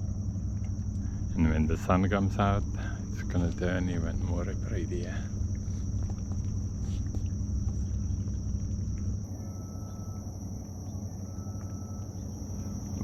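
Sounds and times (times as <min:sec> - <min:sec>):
high-pitched insect drone: 0:00.0 - 0:13.0
low rumble: 0:00.0 - 0:13.0
faint short whistled notes: 0:09.4 - 0:13.0.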